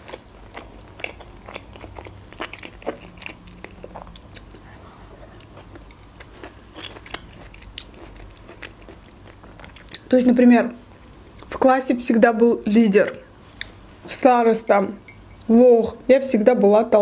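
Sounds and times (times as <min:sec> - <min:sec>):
person chewing food: 0:00.0 - 0:10.1, 0:13.5 - 0:13.8.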